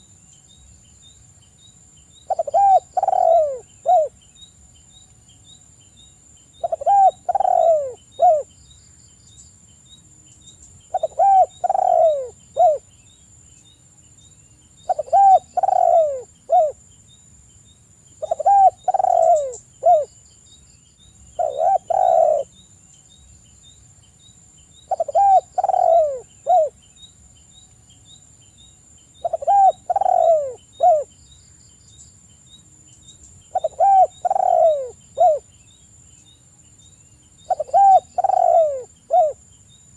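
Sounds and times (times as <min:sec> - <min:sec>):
dove cooing: 0:02.3 - 0:04.2, 0:06.6 - 0:08.5, 0:10.9 - 0:12.8, 0:14.8 - 0:16.8, 0:18.2 - 0:20.1, 0:21.4 - 0:22.5, 0:24.9 - 0:26.8, 0:29.2 - 0:31.1, 0:33.5 - 0:35.5, 0:37.5 - 0:39.4.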